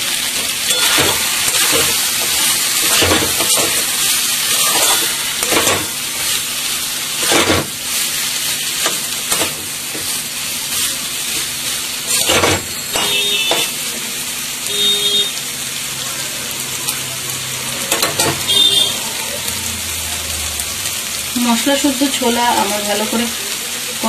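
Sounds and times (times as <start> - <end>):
chickpeas sizzling in oil: 0.0 - 24.0
metal spatula scraping pan: 0.6 - 6.4, 7.1 - 7.7.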